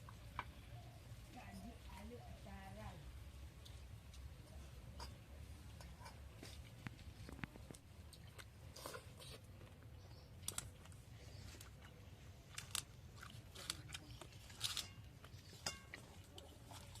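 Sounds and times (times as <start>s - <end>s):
low steady hum: 0.0s - 17.0s
people chewing and crunching: 3.6s - 17.0s.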